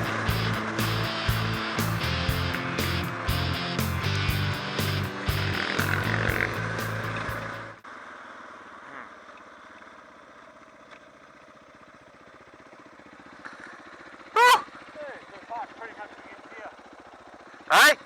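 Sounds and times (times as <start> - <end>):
background music: 0.0 - 7.8
loud sound rising and falling in pitch: 0.0 - 7.8
motorcycle engine running: 0.0 - 18.0.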